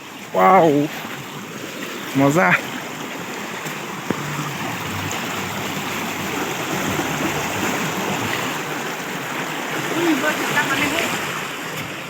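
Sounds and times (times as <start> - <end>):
stream water running: 0.0 - 12.0.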